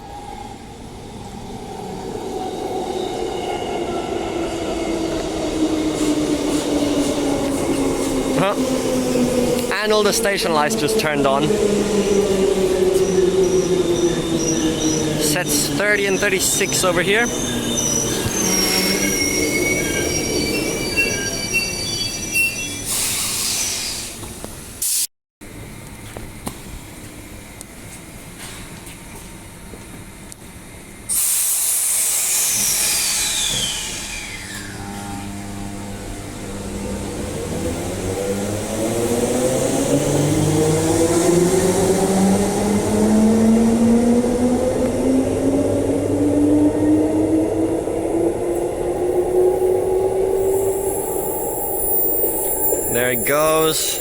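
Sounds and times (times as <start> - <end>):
low train rumble: 0.0 - 24.8, 34.8 - 54.0
train wheels squealing: 12.6 - 24.3, 31.1 - 35.2, 49.6 - 54.0.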